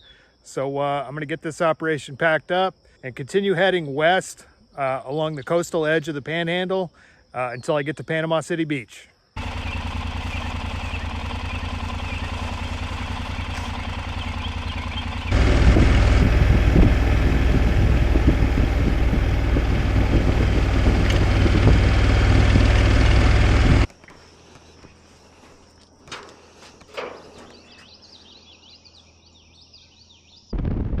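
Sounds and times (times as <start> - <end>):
faint outdoor background: 0.0 - 31.0
motorcycle engine idling: 9.4 - 23.9
motorcycle riding: 9.4 - 23.9.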